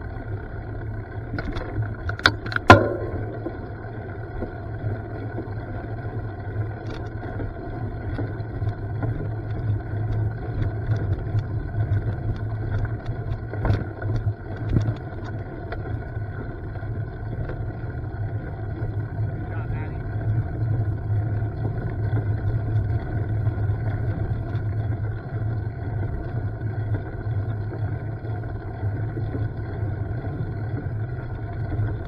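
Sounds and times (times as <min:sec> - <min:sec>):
low engine-like drone: 0:00.0 - 0:32.0
clicks and rattles: 0:01.4 - 0:04.0.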